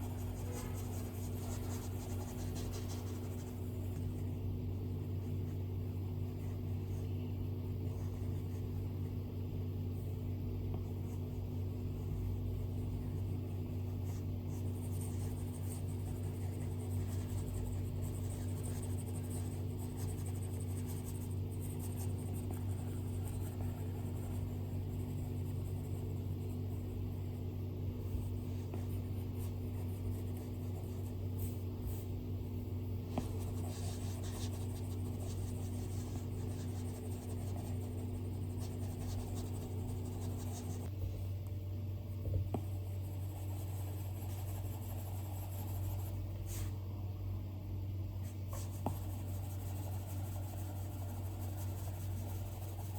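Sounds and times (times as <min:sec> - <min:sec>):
stylus scratching and tapping screen: 0:00.0 - 0:04.4, 0:13.0 - 0:27.0, 0:33.1 - 0:40.9, 0:48.3 - 0:52.9
steady low hum: 0:00.0 - 0:52.9.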